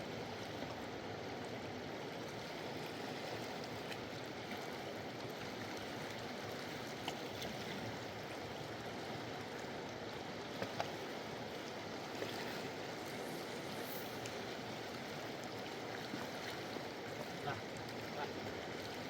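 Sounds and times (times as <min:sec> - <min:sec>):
river rushing: 0:10.9 - 0:19.0.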